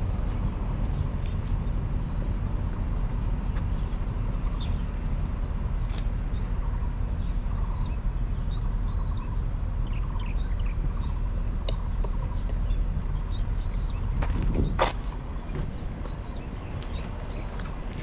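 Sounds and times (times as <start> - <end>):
steady low rumble: 0.0 - 18.0
birds chirping: 0.2 - 18.0.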